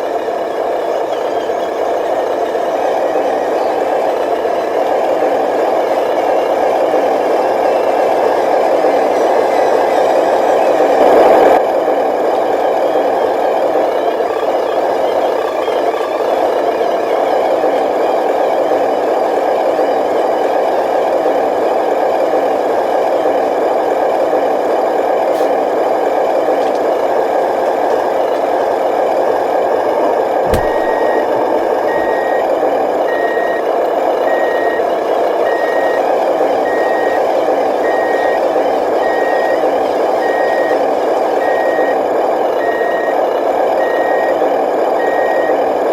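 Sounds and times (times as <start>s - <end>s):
reversing beeper: 30.4s - 40.8s
click: 30.5s - 31.2s.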